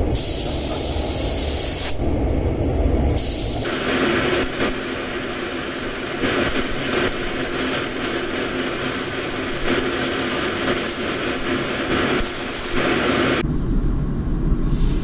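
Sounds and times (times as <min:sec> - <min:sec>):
paint spray gun hissing: 0:00.2 - 0:02.0, 0:03.2 - 0:13.4.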